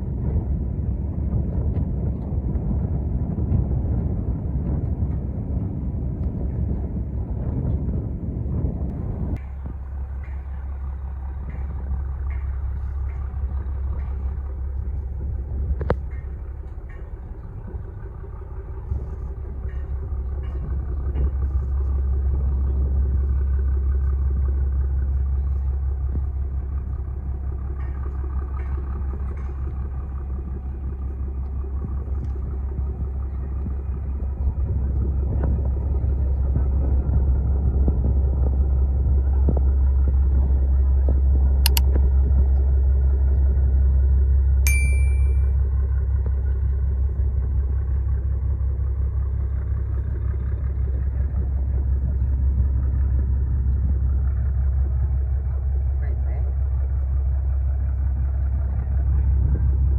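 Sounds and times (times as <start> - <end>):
boat engines rumbling: 0.0 - 59.9.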